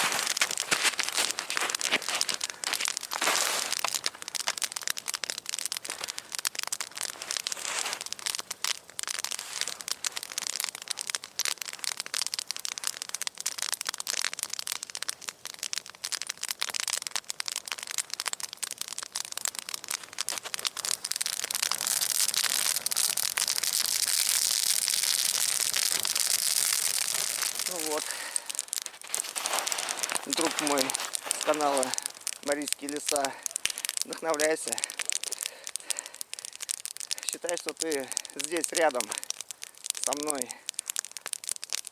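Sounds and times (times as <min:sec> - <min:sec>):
wood fire crackling: 0:00.0 - 0:41.9
steady hiss: 0:25.6 - 0:41.2.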